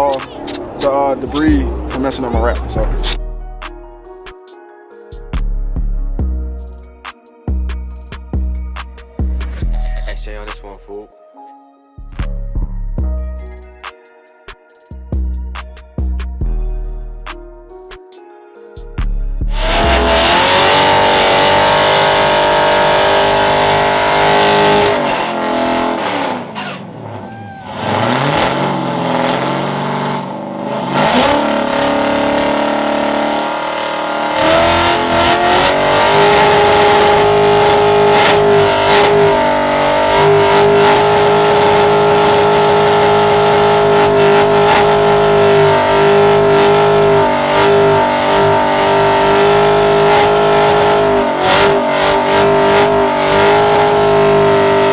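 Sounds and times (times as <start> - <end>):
car engine revving: 0.0 - 3.2, 19.5 - 54.9.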